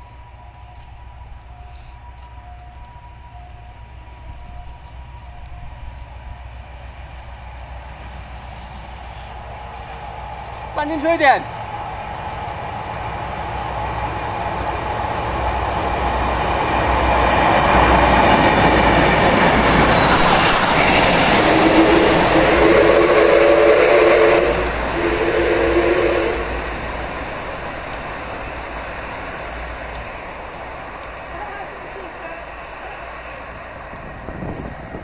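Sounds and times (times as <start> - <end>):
train wheels rumbling and clattering: 0.0 - 35.0
long signal tone blasts: 11.5 - 26.8.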